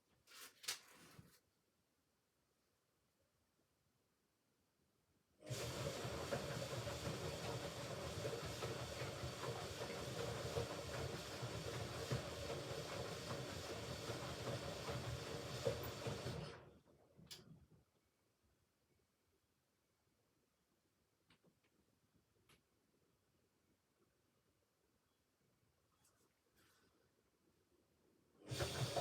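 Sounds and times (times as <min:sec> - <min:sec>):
water hissing into machine: 0:28.5 - 0:29.0.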